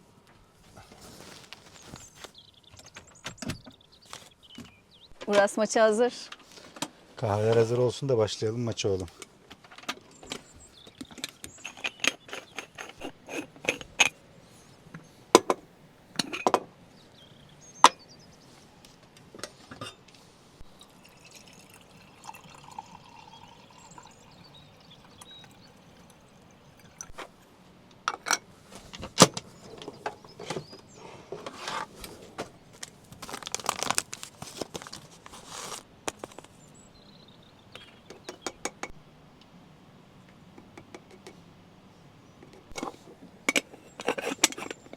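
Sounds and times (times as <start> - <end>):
cups and spoons clinking: 11.0 - 14.2, 15.4 - 16.7, 20.8 - 27.3, 42.4 - 44.9.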